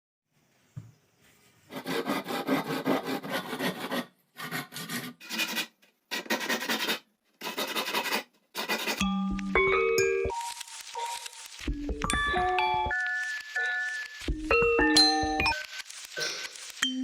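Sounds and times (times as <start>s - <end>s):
hand tool rasping against bamboo: 1.7s - 9.0s.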